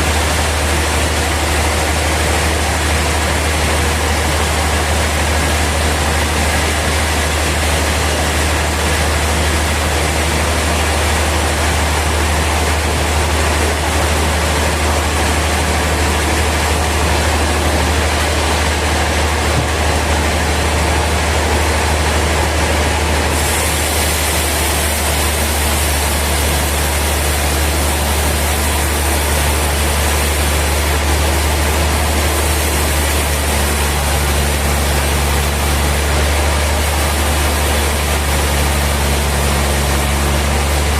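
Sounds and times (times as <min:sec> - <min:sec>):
sawmill machinery deep hum: 0:00.0 - 0:40.9
machinery hiss: 0:23.3 - 0:30.9.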